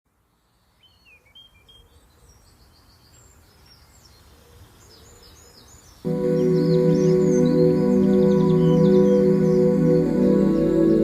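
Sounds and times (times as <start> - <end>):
background hiss: 5.7 - 11.0
birds chirping: 5.7 - 11.0
ambient music chord: 6.1 - 11.0.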